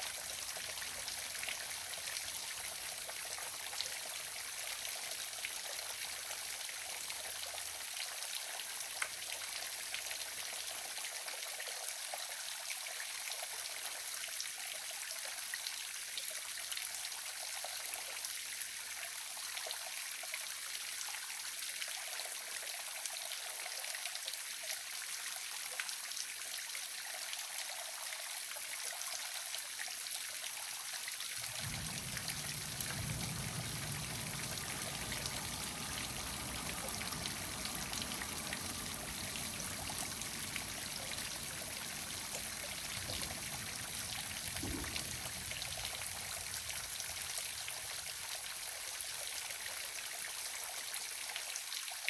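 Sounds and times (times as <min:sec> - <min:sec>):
waterfall rushing: 0:31.4 - 0:48.2
low rumble: 0:31.4 - 0:48.3
brief thump: 0:44.5 - 0:46.1.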